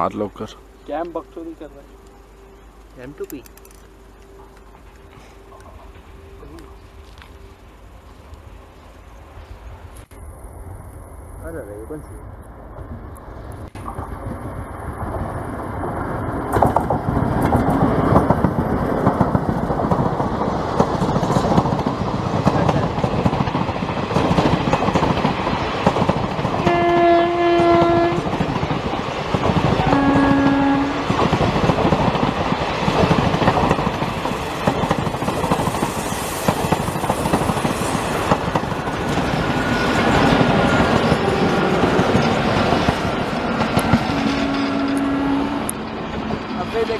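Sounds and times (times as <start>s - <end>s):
electric locomotive passing: 0.0s - 46.9s
train coaches rolling past: 0.0s - 46.9s
locomotive horn: 26.6s - 28.3s, 29.7s - 31.2s, 41.0s - 42.2s, 44.0s - 45.8s.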